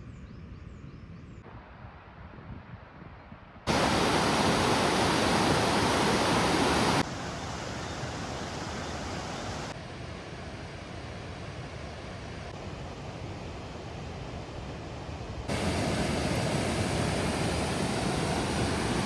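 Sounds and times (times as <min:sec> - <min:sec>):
waterfall rushing: 0:03.7 - 0:09.7, 0:15.5 - 0:19.0.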